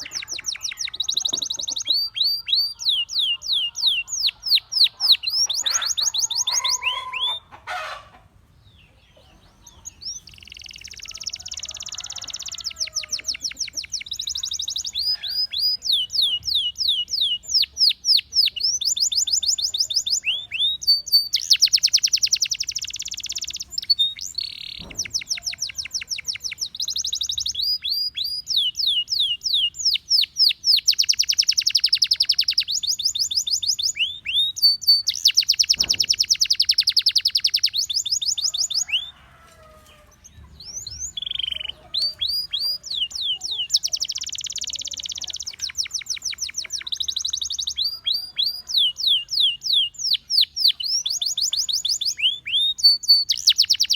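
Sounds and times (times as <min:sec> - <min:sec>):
canary singing in fast trills: 0:00.0 - 0:53.9.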